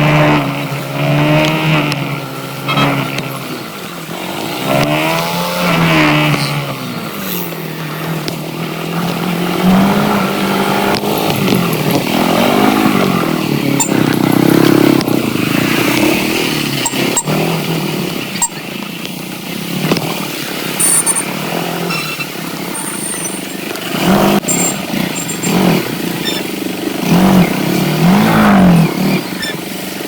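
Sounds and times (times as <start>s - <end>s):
motorcycle engine revving: 0.0s - 30.0s
sharp clicks: 16.8s - 17.4s.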